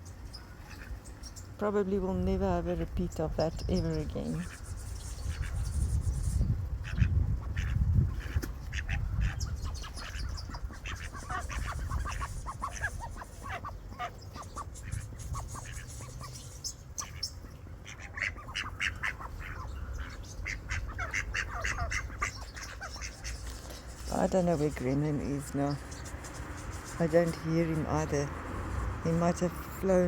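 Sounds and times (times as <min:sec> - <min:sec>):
birds calling: 0:00.0 - 0:02.0, 0:03.2 - 0:30.0
ducks quacking: 0:06.8 - 0:23.6.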